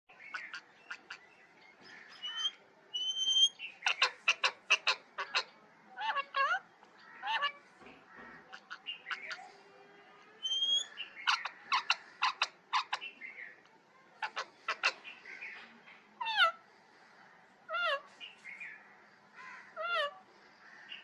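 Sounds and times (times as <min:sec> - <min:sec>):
parrot squawking: 0:02.2 - 0:06.6, 0:07.2 - 0:07.6, 0:10.4 - 0:13.1
parrot whistled calls: 0:02.4 - 0:03.6, 0:10.4 - 0:10.9.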